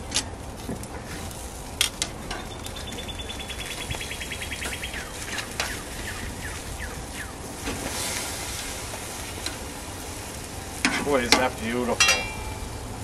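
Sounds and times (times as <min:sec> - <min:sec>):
outdoor background noise: 0:00.0 - 0:13.0
bird chirp falling: 0:02.4 - 0:07.4
small bird trilling: 0:02.5 - 0:07.4.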